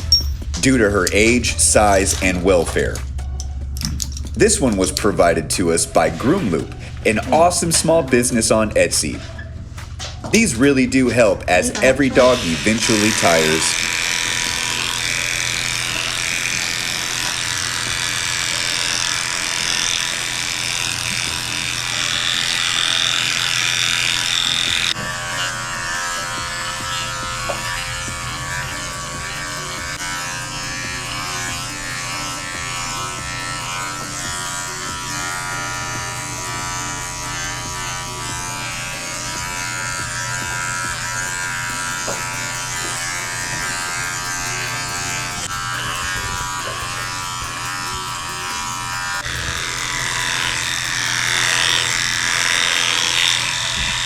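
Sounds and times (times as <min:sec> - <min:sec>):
electric dog clippers running: 0:00.0 - 0:54.0.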